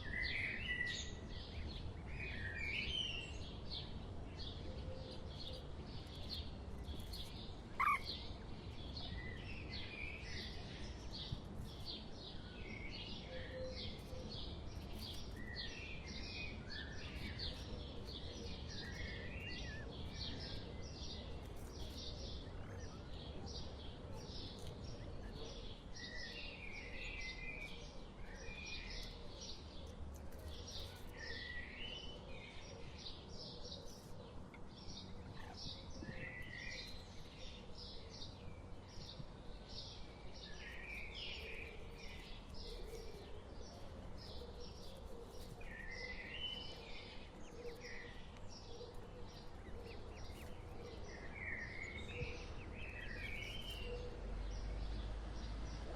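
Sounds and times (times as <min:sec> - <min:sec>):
birds chirping: 0:07.8 - 0:08.3.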